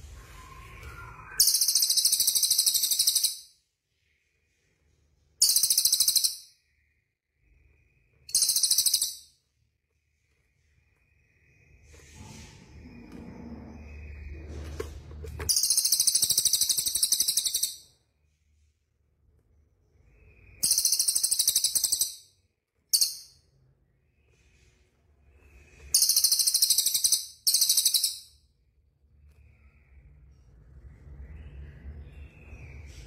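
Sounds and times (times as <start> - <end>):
songbird high-pitched trills: 0.5 - 3.5, 5.4 - 6.6, 8.3 - 9.3, 20.3 - 22.3, 25.9 - 28.4.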